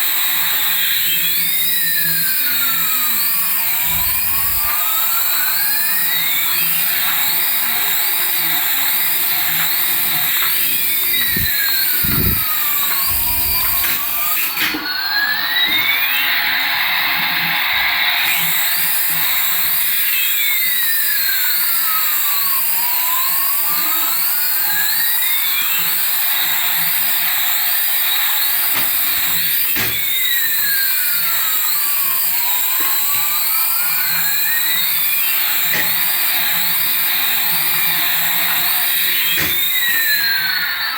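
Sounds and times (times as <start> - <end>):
whirring hiss: 0.5 - 14.9
toy warbling siren tone: 0.6 - 40.9.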